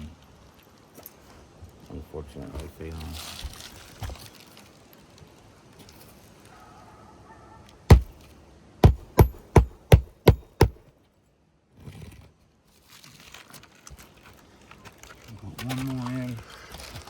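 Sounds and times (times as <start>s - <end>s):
hammer driving nail: 7.9s - 8.2s, 8.8s - 10.8s.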